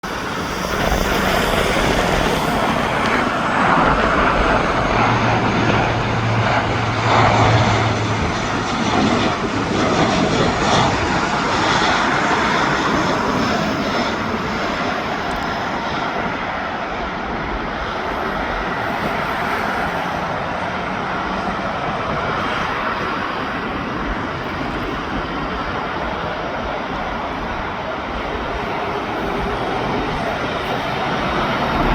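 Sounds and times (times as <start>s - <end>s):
turboprop aircraft engines: 0.0s - 31.9s.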